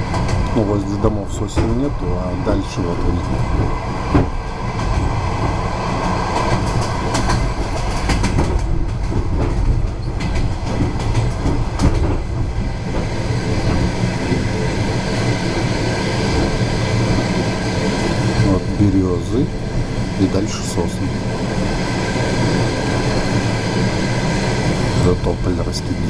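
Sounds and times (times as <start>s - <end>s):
wheels clicking over rail joints: 0.0s - 14.7s
train wheels rumbling on rails: 0.0s - 26.0s.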